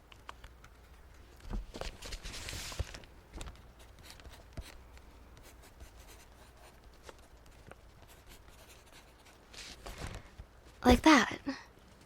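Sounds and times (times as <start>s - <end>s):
pencil writing on paper: 5.4s - 9.4s.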